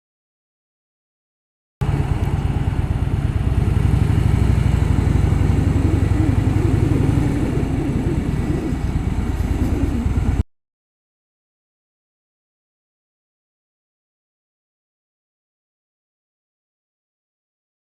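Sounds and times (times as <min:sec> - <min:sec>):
motorcycle engine running: 0:01.8 - 0:10.4.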